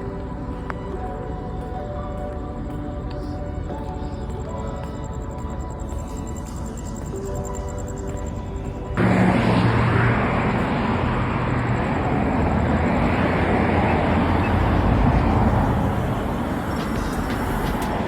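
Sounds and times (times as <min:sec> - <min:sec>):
car driving on road: 0:08.0 - 0:18.0.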